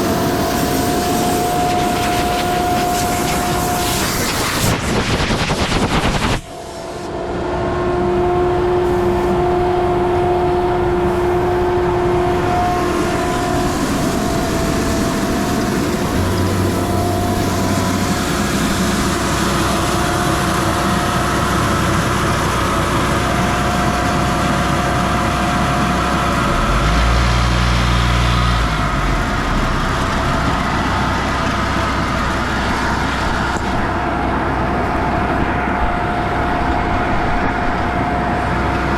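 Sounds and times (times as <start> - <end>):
truck engine and conveyor whine: 0.0 - 38.9
low rumble: 9.5 - 21.5.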